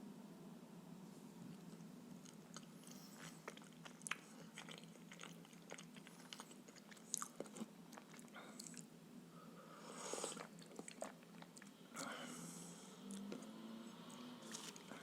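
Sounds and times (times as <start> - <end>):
chewing with wet clicks: 2.2 - 8.9, 10.3 - 12.1, 13.0 - 14.9.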